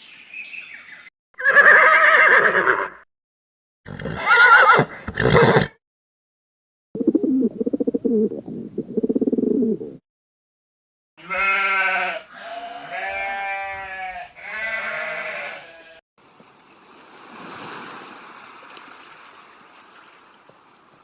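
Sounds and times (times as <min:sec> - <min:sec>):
sheep bleating: 0:11.2 - 0:16.0.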